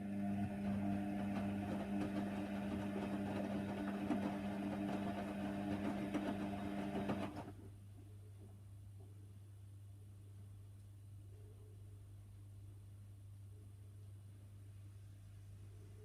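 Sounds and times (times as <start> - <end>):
washing machine motor hum: 0.0 - 7.7
washing machine rattling: 0.7 - 7.5.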